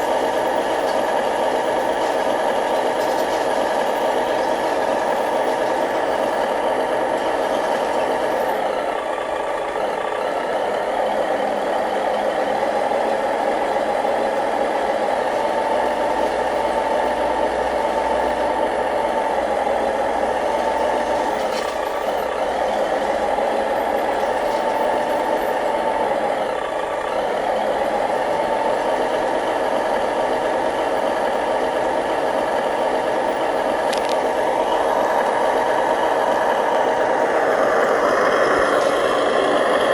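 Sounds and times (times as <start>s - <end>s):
toy vehicle motor and gearbox: 33.6s - 34.3s.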